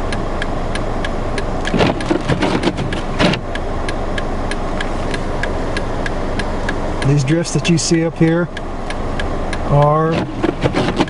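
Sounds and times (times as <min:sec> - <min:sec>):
car engine rumbling: 0:00.0 - 0:11.0
turn signal flasher clicking: 0:00.0 - 0:11.0
rustling noise: 0:01.7 - 0:03.4, 0:10.1 - 0:11.0.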